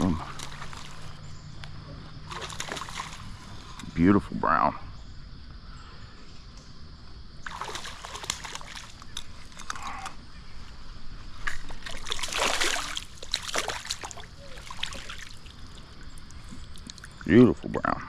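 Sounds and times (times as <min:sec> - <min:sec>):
water splashing: 0:00.0 - 0:01.2, 0:02.2 - 0:04.0, 0:07.4 - 0:10.0, 0:11.4 - 0:17.8.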